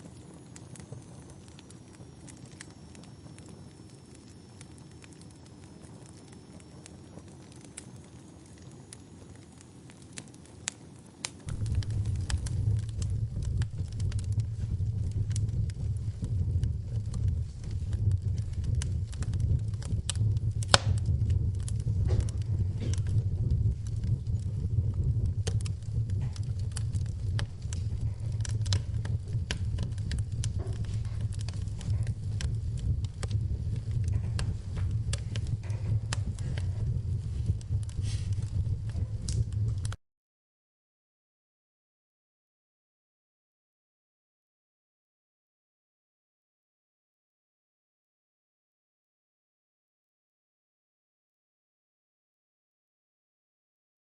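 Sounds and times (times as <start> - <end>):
wood fire crackling: 0.0 - 40.0
loud low rumble: 11.5 - 40.0.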